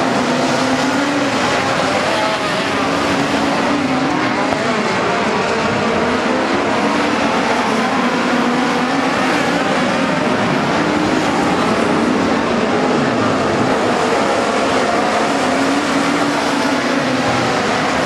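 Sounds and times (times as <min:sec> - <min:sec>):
race car engines droning: 0:00.0 - 0:18.0.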